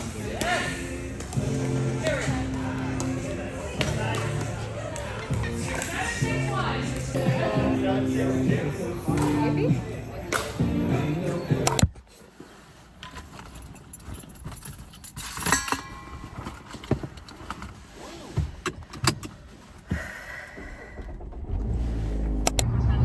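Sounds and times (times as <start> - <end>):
keys jangling: 13.1 - 16.6
low rumble: 20.6 - 23.0.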